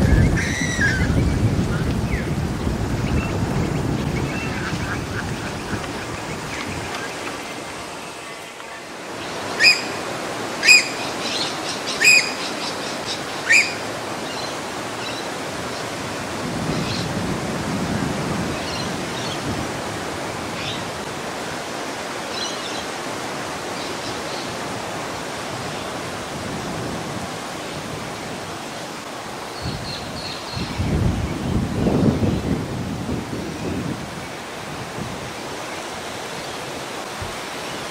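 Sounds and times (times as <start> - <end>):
outdoor hiss: 0.0 - 37.9
loud short bird calls: 9.4 - 13.9
faint high bird chirps: 9.6 - 10.0, 10.6 - 12.8, 13.4 - 13.8.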